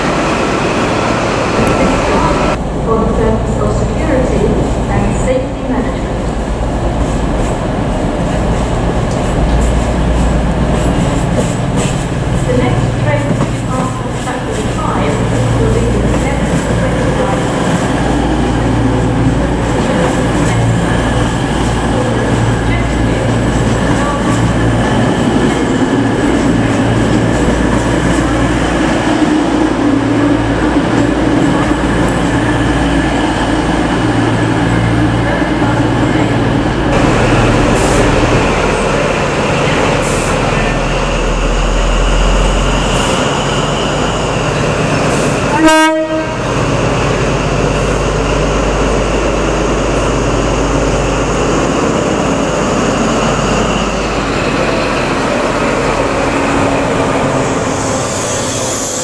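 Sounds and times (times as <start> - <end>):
passenger train running on rails: 0.0 - 59.0
train horn toot: 45.5 - 46.5.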